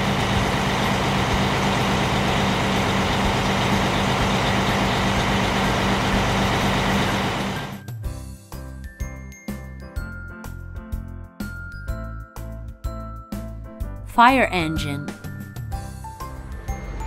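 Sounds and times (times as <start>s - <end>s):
heavy truck engine running: 0.0s - 7.8s.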